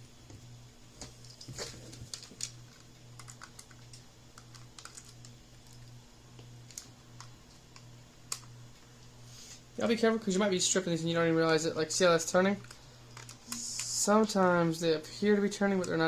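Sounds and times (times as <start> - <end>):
plastic parts handled: 1.0 - 8.5, 12.6 - 14.0.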